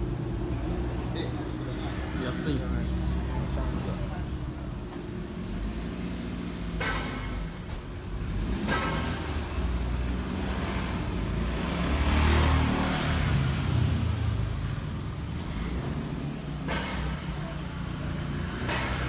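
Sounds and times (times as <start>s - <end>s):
road traffic: 0.0s - 19.0s
vehicle passing: 8.2s - 19.0s.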